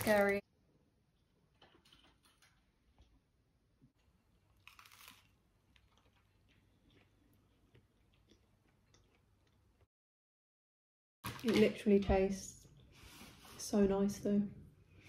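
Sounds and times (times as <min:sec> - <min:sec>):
crunchy bagel chewing: 0:04.3 - 0:09.6.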